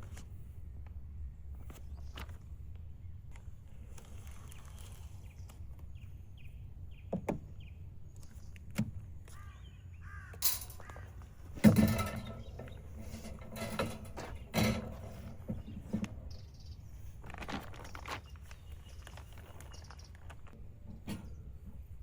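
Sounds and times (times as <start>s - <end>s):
harsh bird calls: 9.3s - 11.3s
rustling: 11.5s - 22.0s.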